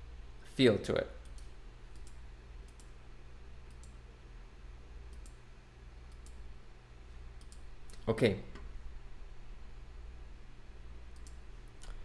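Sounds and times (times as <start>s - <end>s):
low steady hum: 0.0s - 12.0s
computer mouse clicks: 1.2s - 3.0s, 3.7s - 4.0s, 5.1s - 5.4s, 6.1s - 6.4s, 7.4s - 8.0s, 11.1s - 12.0s.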